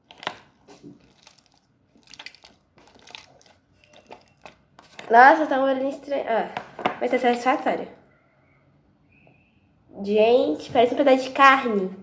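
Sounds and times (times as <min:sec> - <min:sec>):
slime squelching and crackling: 0:00.0 - 0:05.0.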